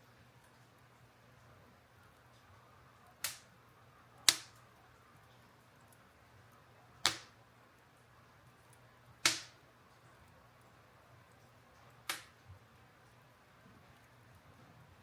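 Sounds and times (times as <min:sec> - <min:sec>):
bonfire wood popping: 0:02.0 - 0:12.8.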